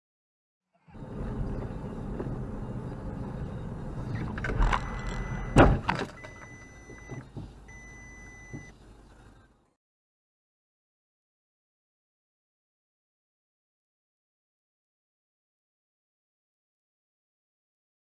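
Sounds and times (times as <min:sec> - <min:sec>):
car road noise: 0:00.8 - 0:09.7
long high electronic beeps: 0:01.0 - 0:08.8
car crash: 0:04.1 - 0:06.6.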